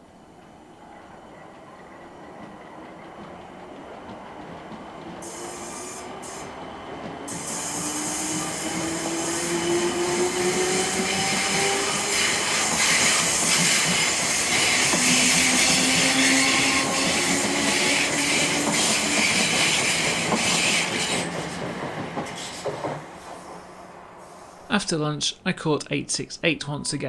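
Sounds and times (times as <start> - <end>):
train rail noise: 0.0 - 24.8
train motor whine: 7.2 - 21.5.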